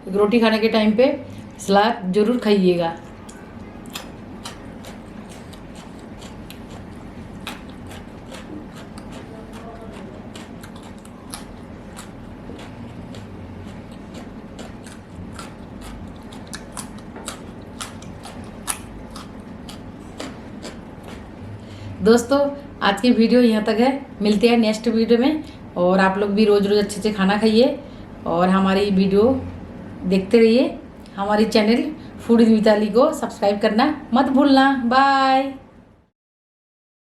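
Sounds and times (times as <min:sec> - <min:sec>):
steady low hum: 0:00.0 - 0:36.1
person chewing food: 0:03.0 - 0:21.4.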